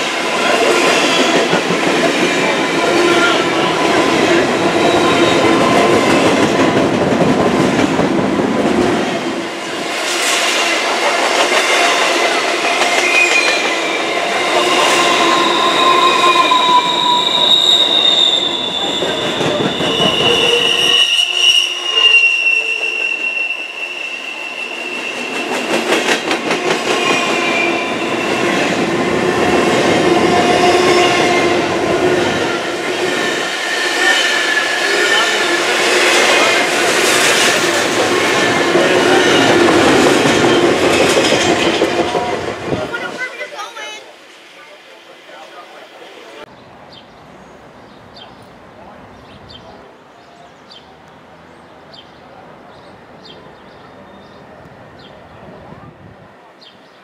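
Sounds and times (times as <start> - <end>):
high wavering wheel squeal: 13.0 - 25.6
train wheels clacking on rail joints: 25.2 - 31.5, 33.3 - 42.9.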